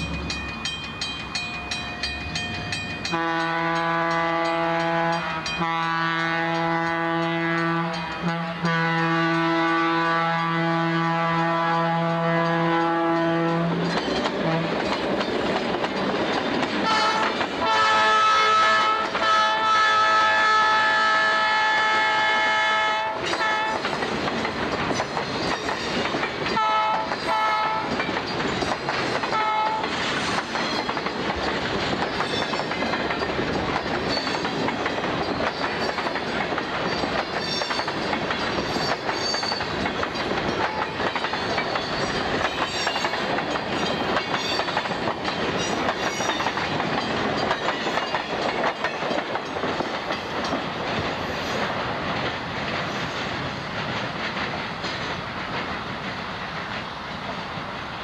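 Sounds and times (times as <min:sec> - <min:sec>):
freight train rumbling by: 0:00.0 - 0:58.0
locomotive horn blasts: 0:03.0 - 0:14.8, 0:16.8 - 0:23.8, 0:26.6 - 0:28.0, 0:29.3 - 0:29.8.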